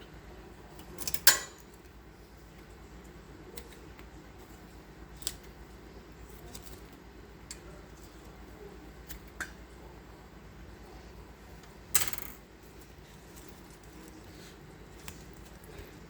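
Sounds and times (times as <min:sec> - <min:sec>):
utensils clinking on a plate: 0:00.8 - 0:01.8.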